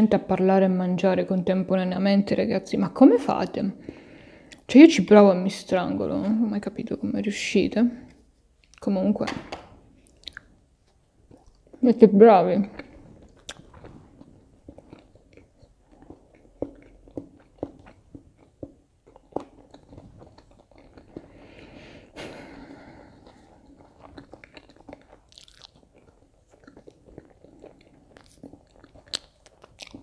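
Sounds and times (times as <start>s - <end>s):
wet mouth clicks: 4.5s - 4.7s, 10.0s - 11.8s, 12.7s - 21.4s, 23.1s - 30.0s
person chewing crispy food: 9.9s - 11.9s, 12.6s - 30.0s.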